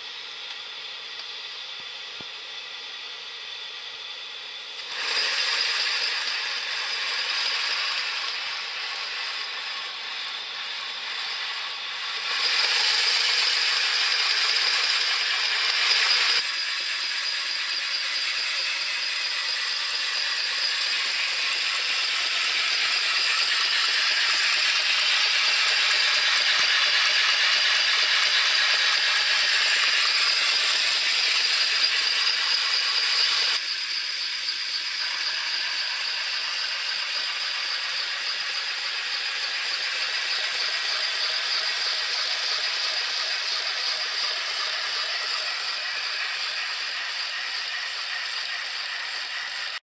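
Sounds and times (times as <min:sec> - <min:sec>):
fast rattle: 0:04.8 - 0:49.8.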